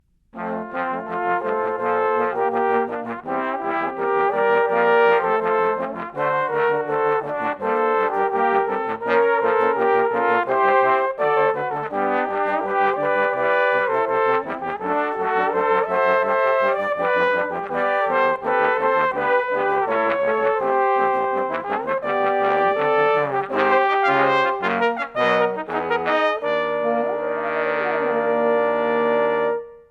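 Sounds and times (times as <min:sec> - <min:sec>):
trombone ensemble playing: 0:00.4 - 0:29.9.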